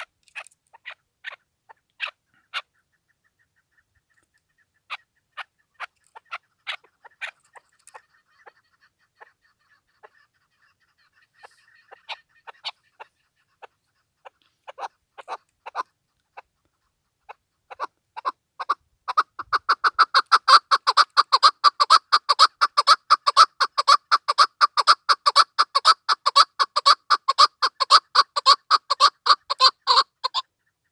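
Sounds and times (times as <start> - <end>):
partridge calling: 17.2 - 30.9.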